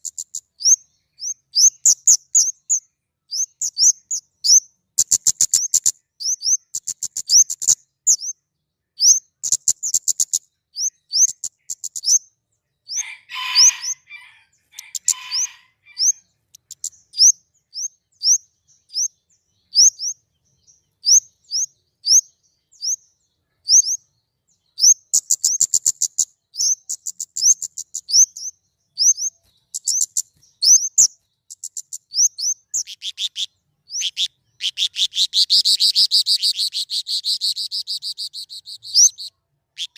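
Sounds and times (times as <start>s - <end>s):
rapid bird ticking: 0.0s - 8.4s, 9.0s - 12.3s, 14.7s - 20.2s, 24.8s - 39.9s
lower harsh bird chatter: 0.0s - 39.9s.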